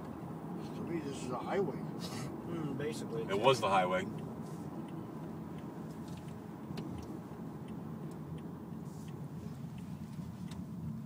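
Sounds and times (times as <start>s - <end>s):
car cabin road rumble: 0.0s - 11.0s
faint ticks: 4.1s - 11.0s.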